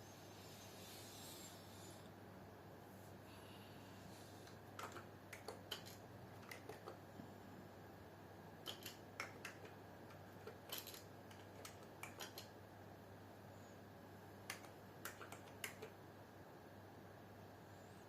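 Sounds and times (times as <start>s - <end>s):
steady low hum: 0.0s - 18.0s
computer keyboard keystrokes: 4.5s - 7.0s, 8.6s - 12.6s, 14.4s - 16.0s.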